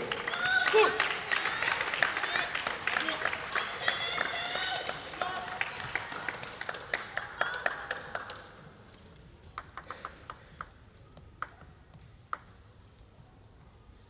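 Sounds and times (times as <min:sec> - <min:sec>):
crowd clapping in rhythm: 0:00.0 - 0:08.9, 0:09.5 - 0:10.8
table tennis ball bouncing: 0:09.4 - 0:12.8.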